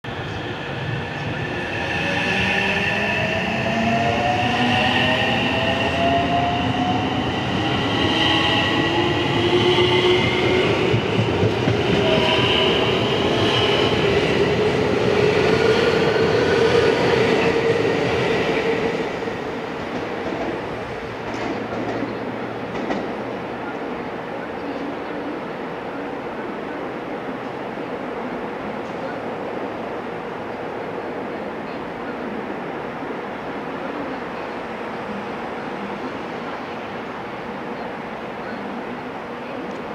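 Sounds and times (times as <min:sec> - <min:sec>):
train wheels rumbling on rails: 0:00.1 - 0:23.7.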